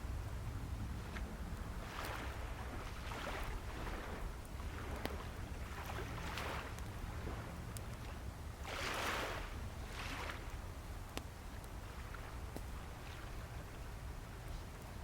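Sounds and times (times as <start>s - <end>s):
low rumble of surf: 0.0s - 15.0s
campfire popping: 0.9s - 15.0s
waves washing on shore: 1.0s - 10.8s.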